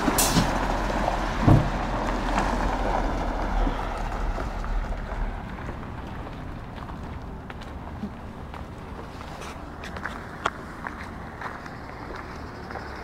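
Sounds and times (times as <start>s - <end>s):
truck engine rumbling: 0.0s - 13.0s
thump: 1.4s - 1.8s.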